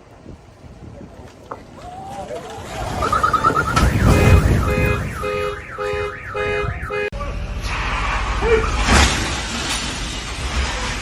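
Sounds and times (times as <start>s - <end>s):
road noise: 0.0s - 11.0s
car alarm warbling: 2.7s - 7.1s.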